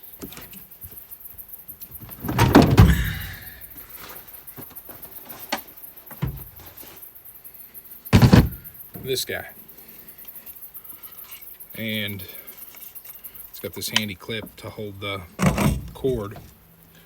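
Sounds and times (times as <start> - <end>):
rough thump and scrape: 2.0 - 4.2, 6.2 - 7.0, 8.2 - 9.1, 15.4 - 16.6.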